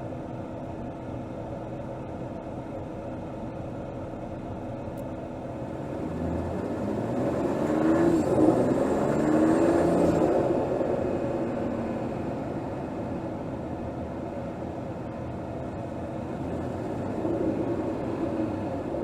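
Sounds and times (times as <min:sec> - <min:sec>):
car engine accelerating: 0:05.0 - 0:13.4.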